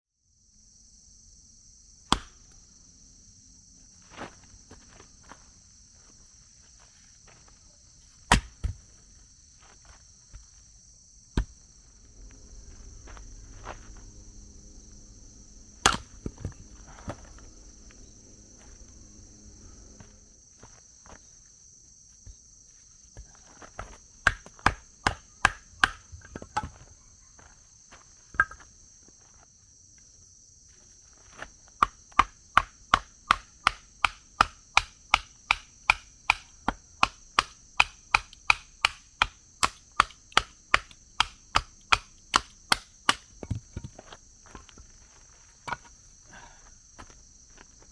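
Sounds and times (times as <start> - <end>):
insects chirring: 0.2 - 47.9
axe chopping wood: 2.1 - 2.6, 8.3 - 8.8, 15.8 - 16.5, 24.2 - 26.8, 31.8 - 44.0.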